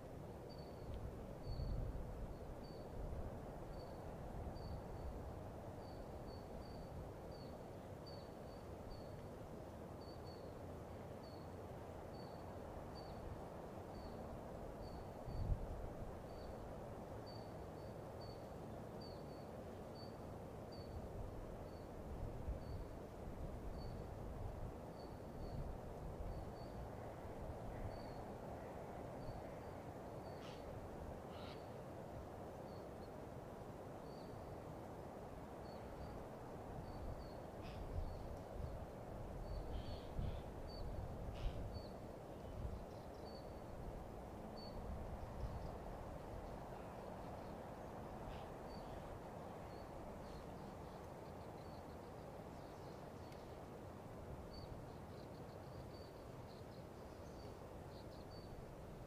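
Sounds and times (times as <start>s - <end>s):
songbird singing: 0.5s - 3.1s, 3.7s - 33.2s, 34.0s - 34.9s, 35.5s - 59.0s
faint clicks: 53.2s - 53.5s.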